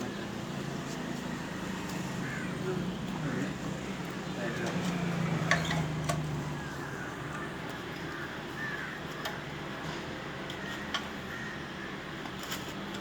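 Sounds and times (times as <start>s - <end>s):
birds calling: 0.0s - 9.6s, 10.5s - 12.2s
engine parts clicking: 4.0s - 8.2s.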